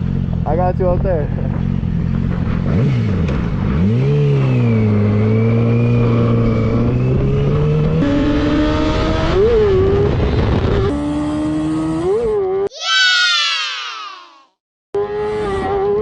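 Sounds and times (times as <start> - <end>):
motorcycle engine running: 0.0 - 5.2
motorcycle passing by: 1.4 - 12.7.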